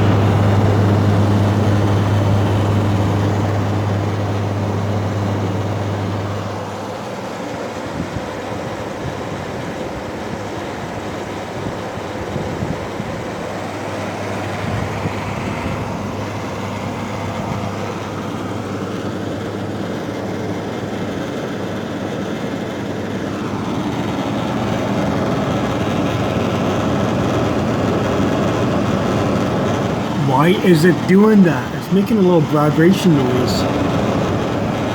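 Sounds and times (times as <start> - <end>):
air conditioner humming: 30.1 - 34.2.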